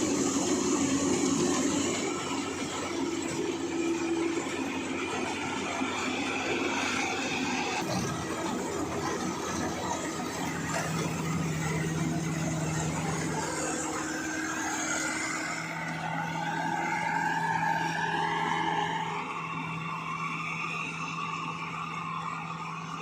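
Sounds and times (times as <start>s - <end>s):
harvester engine humming: 0.0s - 23.0s
rising whine: 0.0s - 23.0s.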